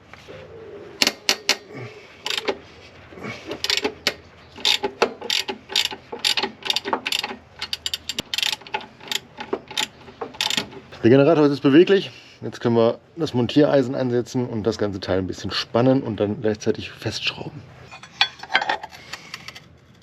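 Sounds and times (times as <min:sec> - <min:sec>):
ratchet wrench clicking: 0:02.2 - 0:02.5, 0:03.6 - 0:10.7.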